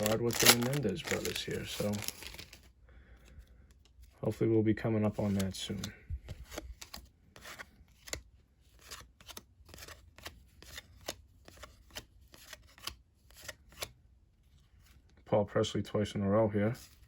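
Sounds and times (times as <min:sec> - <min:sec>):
cards flipping off a stack: 0:00.0 - 0:02.5, 0:05.2 - 0:14.0.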